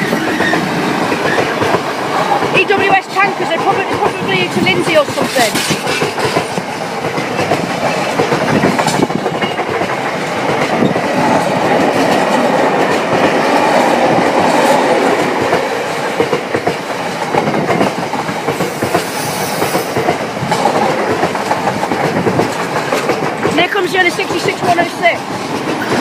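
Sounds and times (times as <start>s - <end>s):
wheels clattering over track: 0.0s - 14.7s
freight train rolling past: 0.0s - 26.0s.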